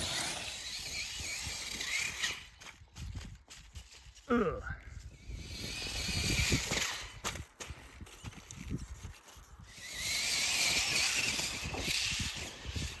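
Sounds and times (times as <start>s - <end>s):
electric motor whining: 0.0s - 2.6s, 5.2s - 7.2s, 9.7s - 13.0s.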